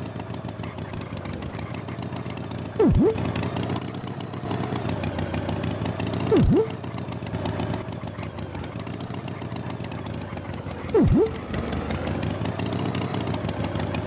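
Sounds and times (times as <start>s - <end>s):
tractor engine running: 0.0s - 14.0s
loud swoop dropping in pitch: 2.8s - 3.2s, 6.3s - 6.7s, 11.0s - 11.4s.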